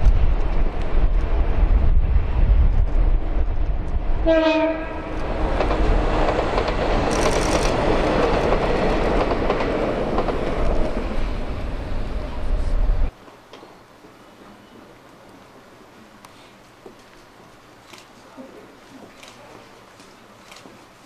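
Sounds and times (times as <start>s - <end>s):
train wheels rumbling on rail: 0.0s - 13.2s
train horn blast: 4.2s - 5.1s.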